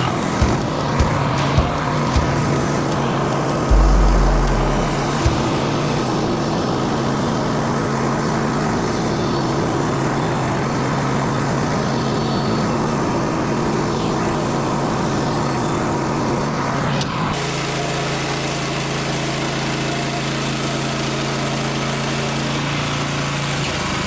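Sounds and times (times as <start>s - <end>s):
deep thump: 3.7s - 6.2s.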